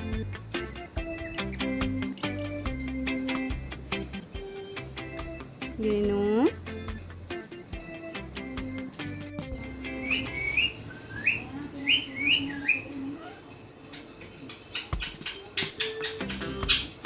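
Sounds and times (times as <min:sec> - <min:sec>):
parrot chirping: 0:00.0 - 0:03.5, 0:09.7 - 0:17.0.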